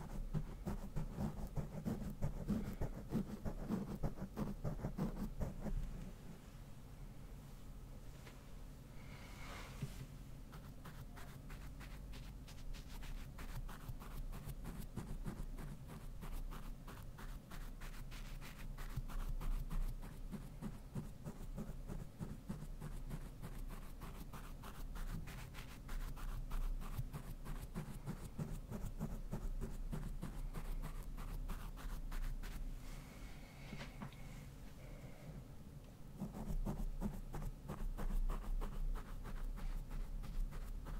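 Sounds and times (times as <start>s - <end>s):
brush scratching on microphone: 10.5s - 32.6s.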